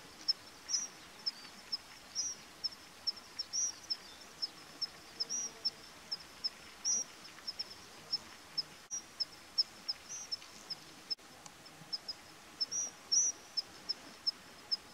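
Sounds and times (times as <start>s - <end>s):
small bird chirping: 0.0s - 10.9s, 11.9s - 14.9s
faint outdoor hiss: 0.0s - 14.9s.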